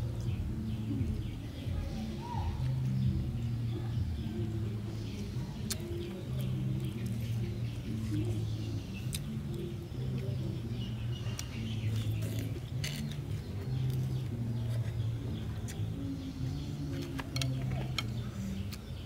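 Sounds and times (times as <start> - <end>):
chewing and mouth noises: 5.1 - 10.6, 11.2 - 16.0.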